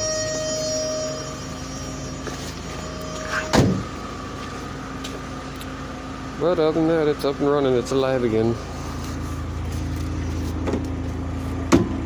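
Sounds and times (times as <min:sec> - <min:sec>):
car door warning tone: 0:00.0 - 0:05.0
car engine idling: 0:00.0 - 0:12.0.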